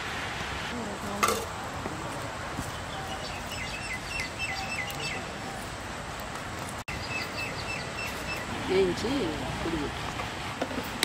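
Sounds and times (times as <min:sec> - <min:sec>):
outdoor background noise: 0:00.0 - 0:11.0
bird chirping: 0:02.6 - 0:05.7, 0:06.9 - 0:08.9.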